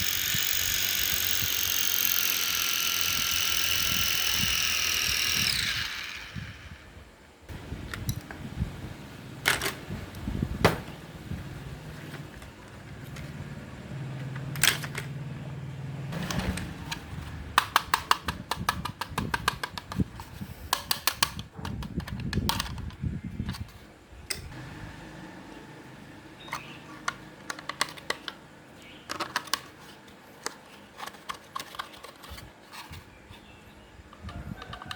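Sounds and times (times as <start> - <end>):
small motor humming: 0.0 - 7.6
plastic parts clicking and rattling: 16.2 - 24.5, 26.5 - 33.1, 34.1 - 34.9.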